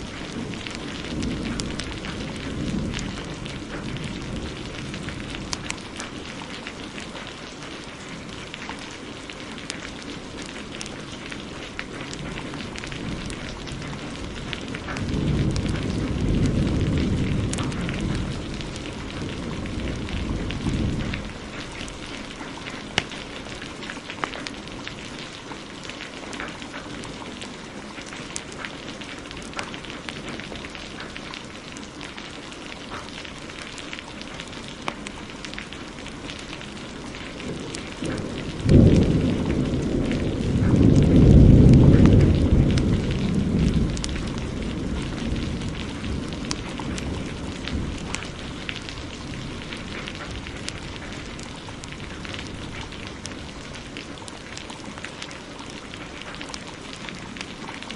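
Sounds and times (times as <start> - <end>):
thunderclap rumbling: 0.0 - 7.6, 9.8 - 25.4, 34.4 - 55.2
fireplace crackling: 0.0 - 39.2, 42.0 - 57.9
heavy rain: 0.0 - 57.9.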